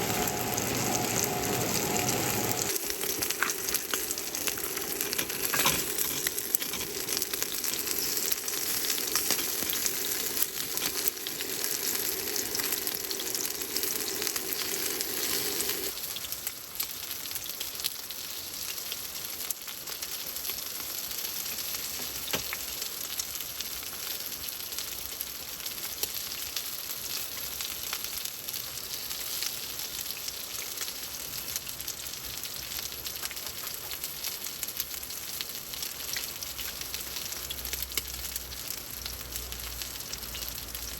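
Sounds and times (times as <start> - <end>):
low hum: 0.0 - 15.9
food sizzling in a pan: 0.0 - 40.9.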